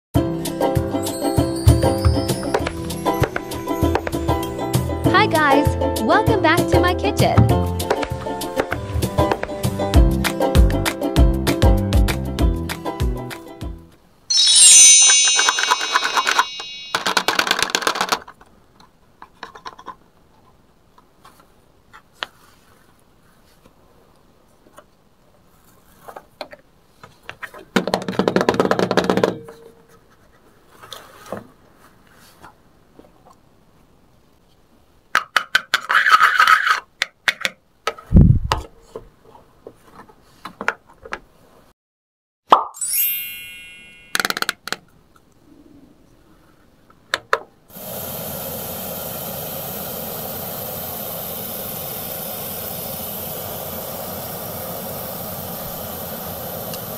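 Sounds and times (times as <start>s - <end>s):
short bright chime: 1.0s - 4.6s, 14.3s - 17.5s, 42.8s - 44.4s.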